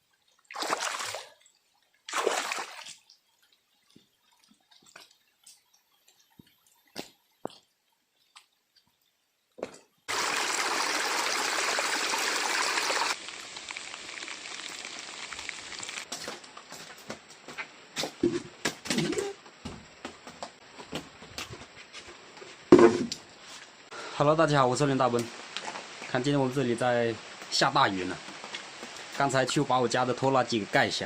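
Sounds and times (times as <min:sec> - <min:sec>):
water drips: 0:00.0 - 0:09.1, 0:09.7 - 0:16.1
heavy rain downpour: 0:10.1 - 0:16.1, 0:24.0 - 0:31.0.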